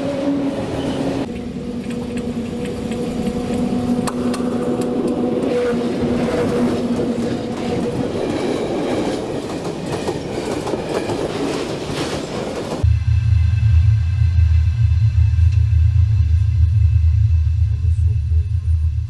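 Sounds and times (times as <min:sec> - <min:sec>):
train rolling on rails: 0:00.0 - 0:19.0
loud deep steady rumble: 0:12.8 - 0:19.0.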